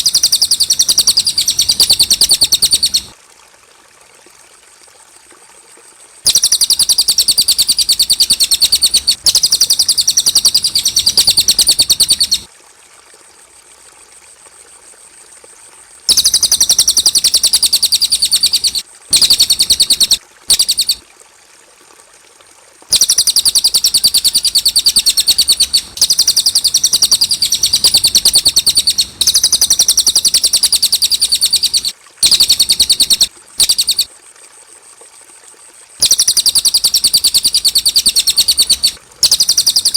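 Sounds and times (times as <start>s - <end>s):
bird singing high-pitched trills: 0.0s - 3.1s, 6.3s - 12.5s, 16.1s - 21.0s, 22.9s - 34.1s, 36.0s - 39.9s.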